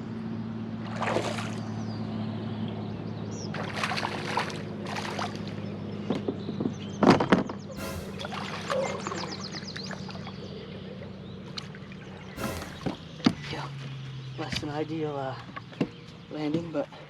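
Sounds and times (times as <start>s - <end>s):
fish splashing at the surface: 3.6s - 5.6s
steady low hum: 7.8s - 9.4s.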